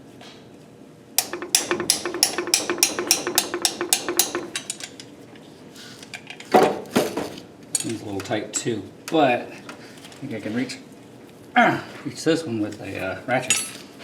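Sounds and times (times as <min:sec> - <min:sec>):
loud metal clank: 0:01.2 - 0:05.0
socket ratchet clicking: 0:01.2 - 0:05.0.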